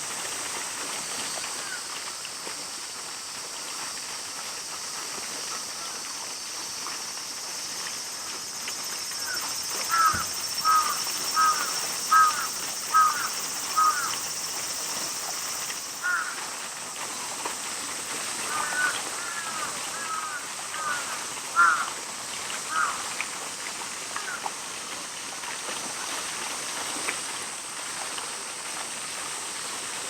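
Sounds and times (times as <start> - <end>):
high-pitched outdoor hiss: 0.0 - 30.0
bird harsh calls: 9.2 - 14.2, 16.0 - 16.4.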